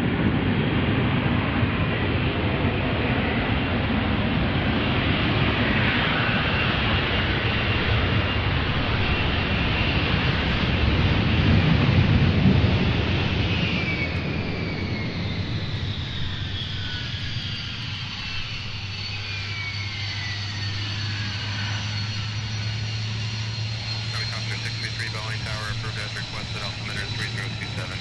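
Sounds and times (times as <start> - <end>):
jet aircraft passing by: 0.0 - 28.0
steady low hum: 20.5 - 28.0.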